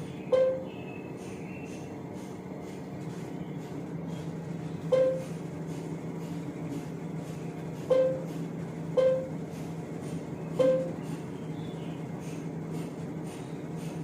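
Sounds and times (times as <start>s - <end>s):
steady low hum: 0.0s - 14.0s
touch panel beeps: 0.3s - 0.7s, 4.9s - 5.3s, 7.9s - 8.3s, 9.0s - 9.3s, 10.6s - 11.0s.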